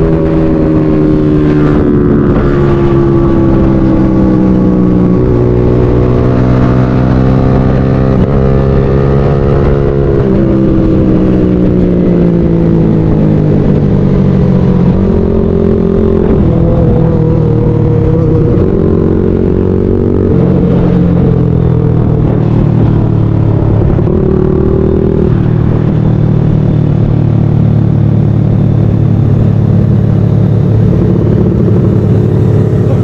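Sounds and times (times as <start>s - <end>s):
motorcycle engine running: 0.0s - 33.0s
road and wind noise: 0.0s - 33.0s.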